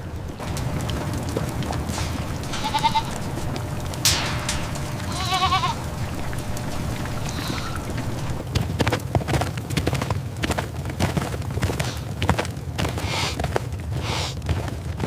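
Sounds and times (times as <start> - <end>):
steady low rumble: 0.0 - 8.8
goats bleating: 0.4 - 8.4
hissing burst: 0.4 - 8.5.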